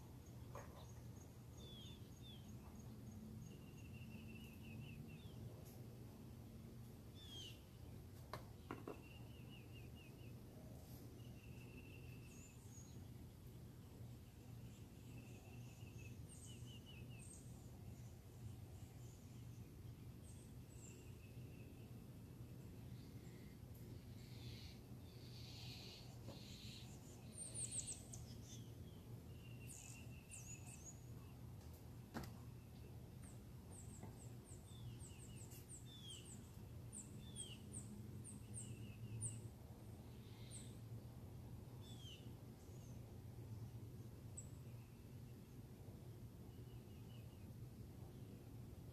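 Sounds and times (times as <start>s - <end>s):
steady low hum: 0.0s - 48.9s
birds chirping: 6.8s - 41.1s.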